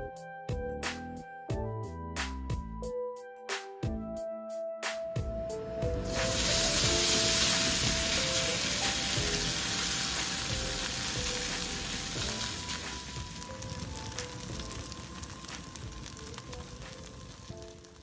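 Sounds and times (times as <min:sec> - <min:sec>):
food sizzling in hot oil: 0:05.6 - 0:18.0.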